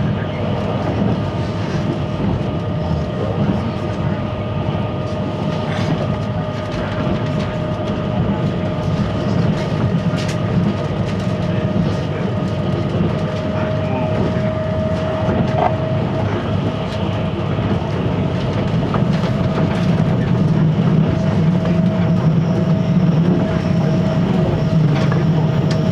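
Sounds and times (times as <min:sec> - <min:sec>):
constant hum: 0:00.0 - 0:25.9
train wheels rumbling on rail: 0:00.0 - 0:25.9
light track clicks: 0:08.6 - 0:13.6.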